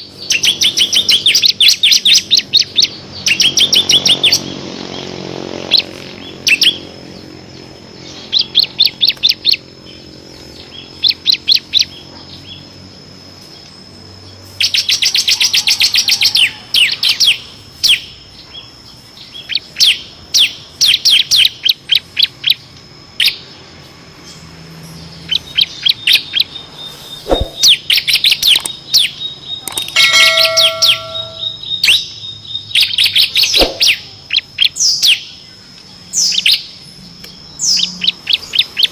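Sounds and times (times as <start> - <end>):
bird fast trill: 0.0 - 12.6, 24.9 - 35.4
bird sharp chip notes: 29.6 - 32.0.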